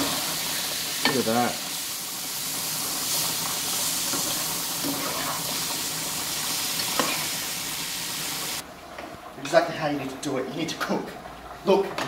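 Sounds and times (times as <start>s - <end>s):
food sizzling in a frying pan: 0.0s - 12.0s
metal spoon scraping a pan: 4.1s - 5.7s, 6.8s - 7.4s.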